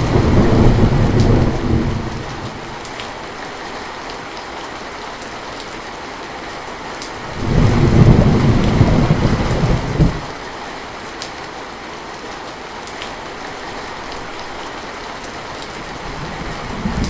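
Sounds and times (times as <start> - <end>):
low rumble of thunder: 0.0 - 3.1, 7.3 - 10.3, 15.8 - 17.0
heavy rain falling: 0.0 - 17.0.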